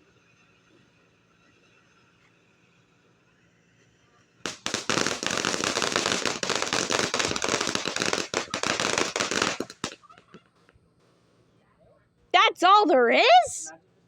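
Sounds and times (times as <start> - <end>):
fireworks crackling bangs: 4.3 - 11.3.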